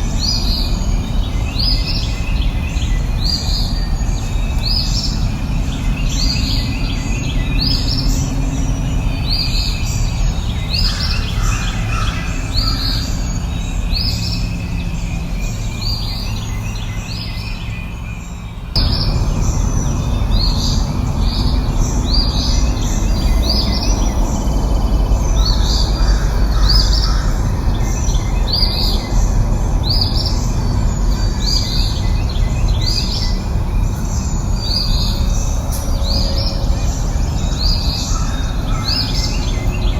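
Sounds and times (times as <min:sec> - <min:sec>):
birds chirping: 0:00.0 - 0:39.9
steady low rumble: 0:18.2 - 0:39.9.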